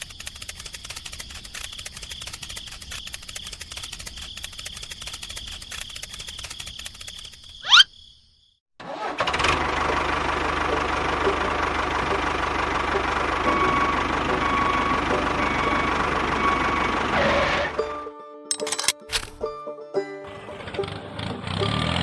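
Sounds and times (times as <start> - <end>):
small engine running: 0.0 - 7.3, 8.8 - 17.8.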